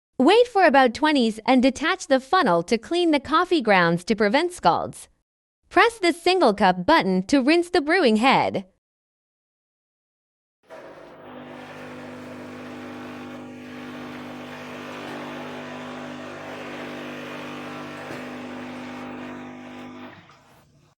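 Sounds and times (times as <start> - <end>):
espresso machine pump humming: 10.7 - 20.9
hot water flushing: 10.7 - 20.9.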